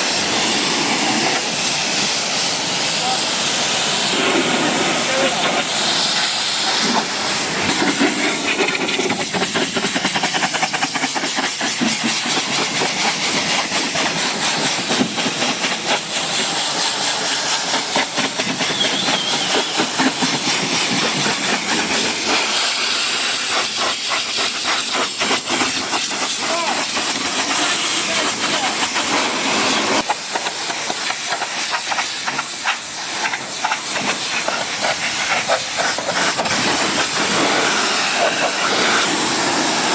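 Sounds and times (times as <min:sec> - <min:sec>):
pressure washer spray hissing: 0:00.0 - 0:39.9.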